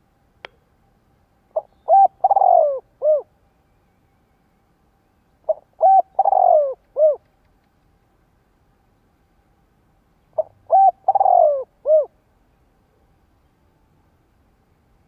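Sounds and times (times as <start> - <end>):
dove cooing: 1.5 - 3.3, 5.4 - 7.3, 10.4 - 12.2.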